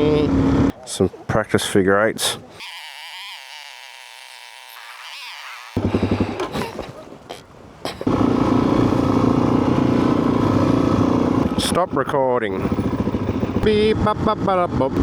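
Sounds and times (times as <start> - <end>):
dirt bike engine running: 5.8 - 7.0, 8.0 - 15.0.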